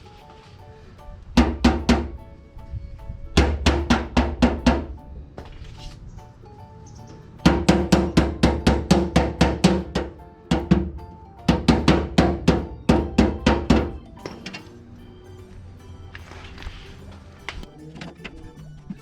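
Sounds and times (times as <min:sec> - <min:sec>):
hammer striking sheet steel: 0:01.4 - 0:02.2, 0:03.4 - 0:05.0, 0:07.4 - 0:14.8.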